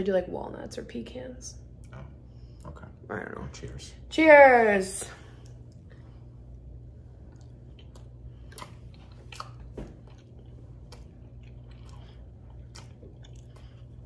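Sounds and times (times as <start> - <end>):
low room hum: 0.0 - 14.0
people chewing cookies: 1.6 - 3.9, 5.1 - 14.0.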